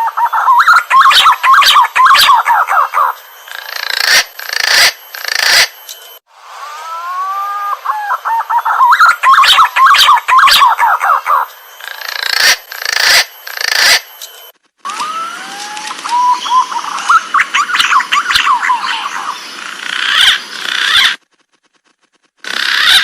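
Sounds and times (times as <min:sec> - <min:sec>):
pigeon whistling song: 0:00.0 - 0:03.2, 0:06.9 - 0:12.2, 0:14.9 - 0:19.4.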